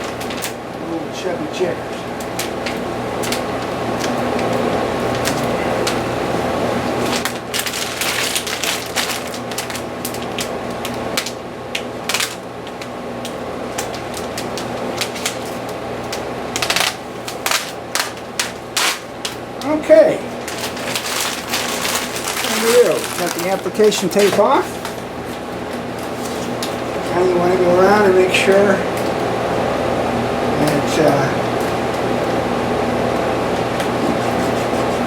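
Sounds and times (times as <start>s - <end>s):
plastic film peeling and crinkling: 0.0s - 0.6s, 7.0s - 27.5s
steady background hum: 0.0s - 35.0s.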